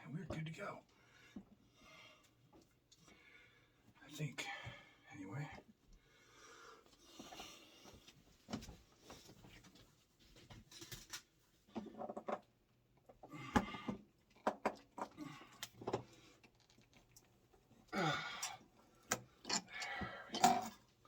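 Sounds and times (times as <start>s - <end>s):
person grunting: 17.9s - 18.6s.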